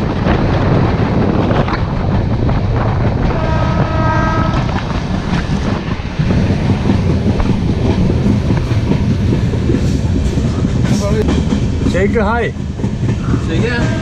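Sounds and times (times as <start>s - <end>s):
train coach rumbling on rails: 0.0s - 14.0s
train horn: 3.3s - 4.8s, 13.7s - 14.0s.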